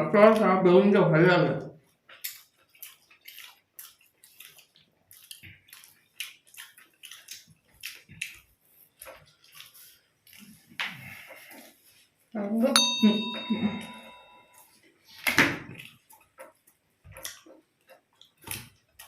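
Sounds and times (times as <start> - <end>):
chewing and mouth smacks: 1.8 - 12.0, 14.6 - 19.0.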